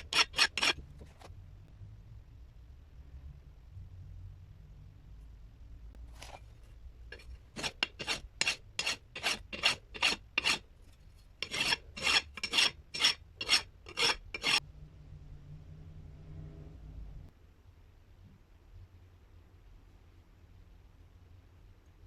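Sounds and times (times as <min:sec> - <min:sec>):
rasping strokes: 0:00.0 - 0:01.0, 0:07.1 - 0:14.6.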